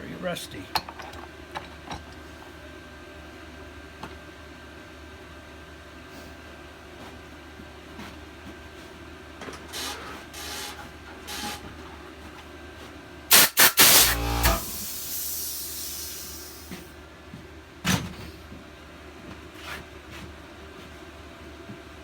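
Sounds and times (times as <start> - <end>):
hiss: 13.3 - 16.8.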